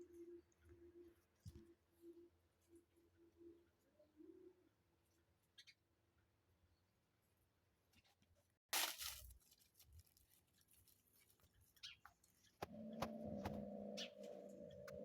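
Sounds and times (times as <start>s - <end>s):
kittens rustling and scratching: 8.8s - 13.7s
low hum: 12.7s - 15.0s.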